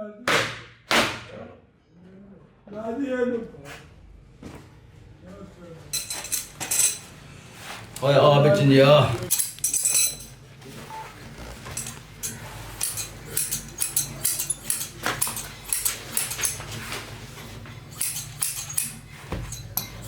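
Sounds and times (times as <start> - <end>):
metallic clicks of hand tools: 11.8 - 16.7, 17.9 - 20.0.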